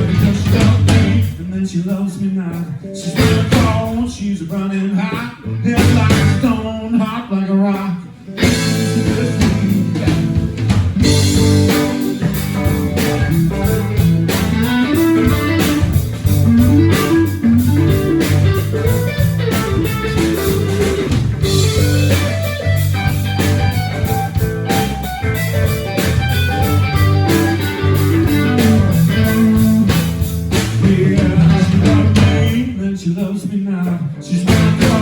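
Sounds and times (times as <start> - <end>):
drum kit: 0.0 - 4.3, 5.1 - 6.8, 8.3 - 32.8, 34.4 - 35.0
bass guitar: 0.0 - 33.2, 33.8 - 35.0
electric guitar lead: 8.2 - 32.6.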